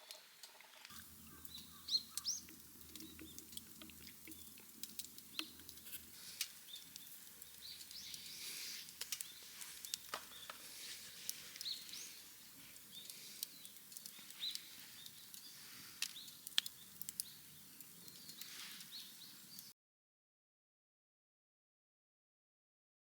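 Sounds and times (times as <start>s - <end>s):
small birds chirping: 0.9s - 19.7s
sharp clicks: 13.0s - 17.3s.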